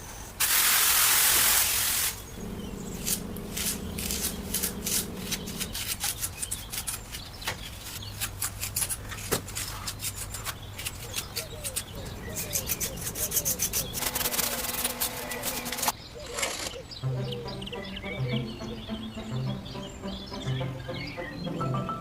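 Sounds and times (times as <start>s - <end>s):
small scrapes and clicks: 3.0s - 16.8s.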